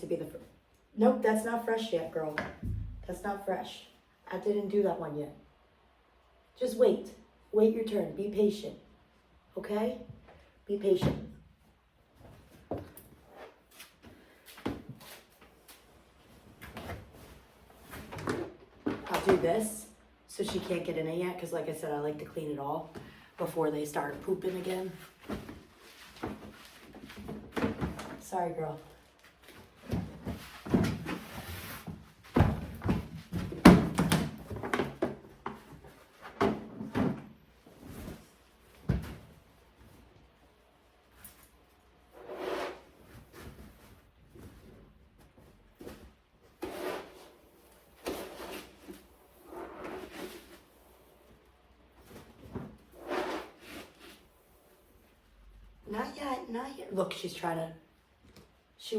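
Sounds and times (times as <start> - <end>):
scooper scraping cat litter: 46.6 - 47.4, 52.9 - 54.2.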